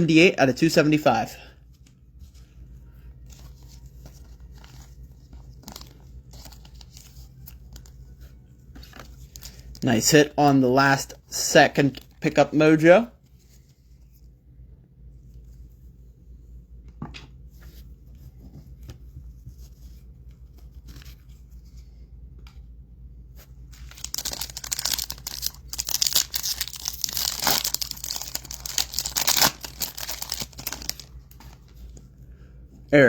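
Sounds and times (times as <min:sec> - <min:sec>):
foil pack tearing and crinkling: 0:23.8 - 0:31.1.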